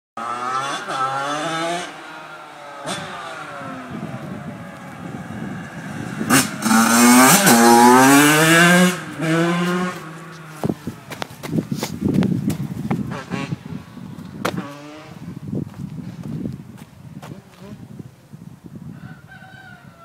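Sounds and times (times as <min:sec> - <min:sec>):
two-stroke engine revving: 0:00.2 - 0:04.2, 0:05.0 - 0:10.7, 0:13.0 - 0:13.8.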